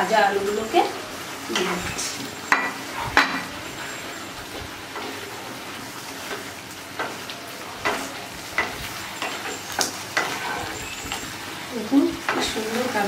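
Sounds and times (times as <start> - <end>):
potatoes sizzling in a pan: 0.0 - 13.0
wooden spatula scraping a pan: 1.5 - 11.4.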